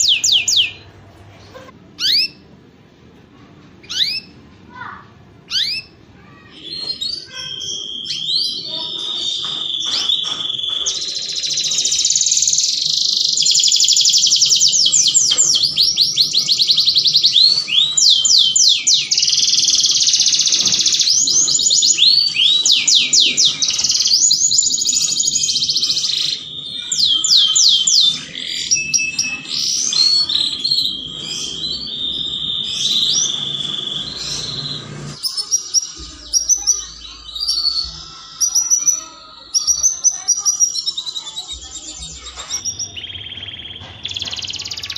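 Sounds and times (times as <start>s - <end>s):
canary singing trills: 0.0s - 2.5s, 3.8s - 44.9s.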